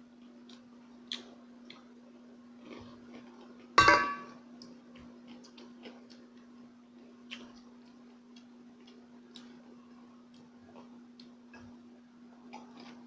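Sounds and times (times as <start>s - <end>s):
tableware clinking: 3.8s - 4.4s.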